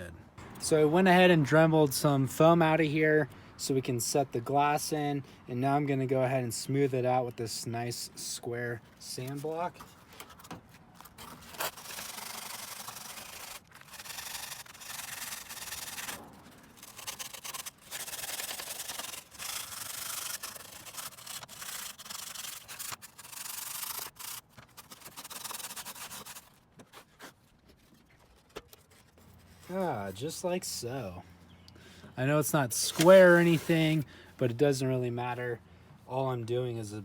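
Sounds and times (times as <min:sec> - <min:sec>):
sanding block rubbing foam board: 0:11.6 - 0:16.2, 0:16.8 - 0:26.5, 0:32.8 - 0:34.0.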